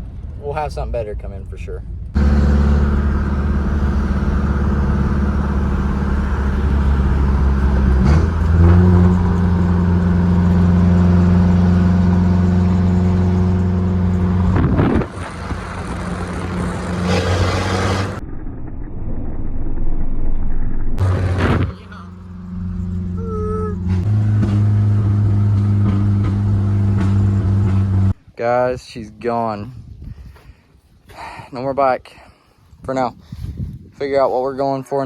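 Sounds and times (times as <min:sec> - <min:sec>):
pickup truck engine droning: 0:02.2 - 0:18.8, 0:21.0 - 0:28.2.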